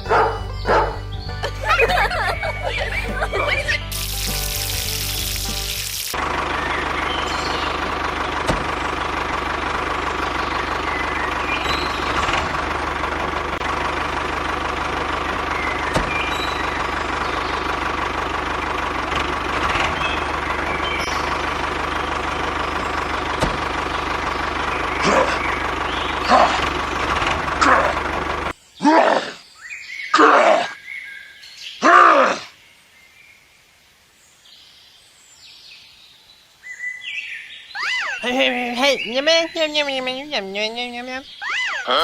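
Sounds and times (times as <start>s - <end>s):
motor humming: 0.0s - 28.5s
loud groaning calls: 24.8s - 28.1s, 41.3s - 42.0s.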